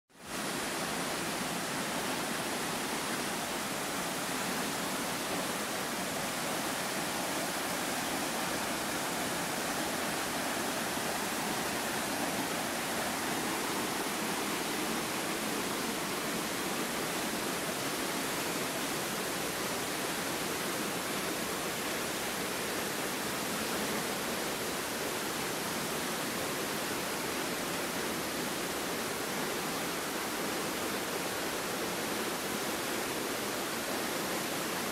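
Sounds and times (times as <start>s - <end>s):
waterfall roaring: 0.2s - 34.9s.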